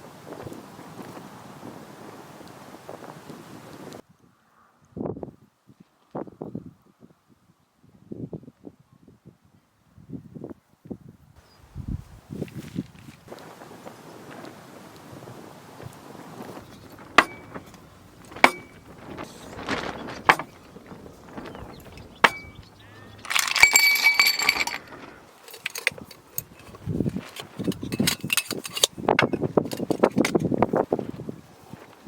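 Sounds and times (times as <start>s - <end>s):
rustling and handling noises: 12.0s - 32.0s
jangling clatter: 16.6s - 30.5s
hard objects clinking: 16.7s - 30.5s.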